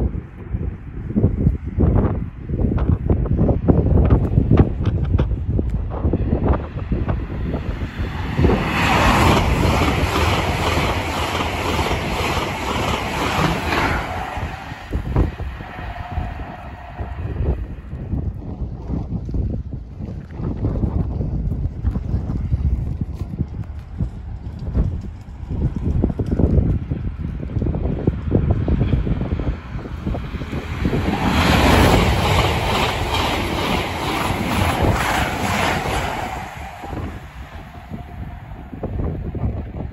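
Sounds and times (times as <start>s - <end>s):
high-speed train passing: 0.0s - 19.0s, 23.3s - 39.9s
wheels beating over rails: 4.1s - 17.1s, 23.8s - 39.3s.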